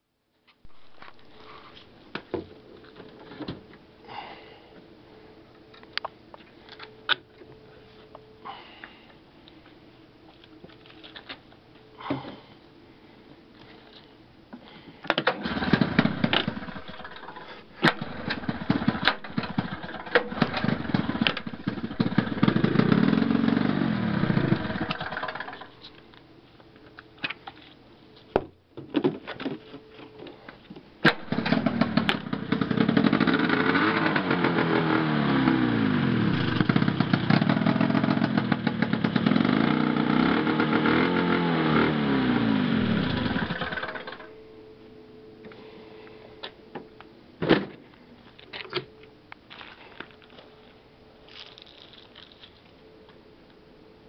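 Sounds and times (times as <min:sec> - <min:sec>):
snowmobile engine revving: 0:31.4 - 0:44.2.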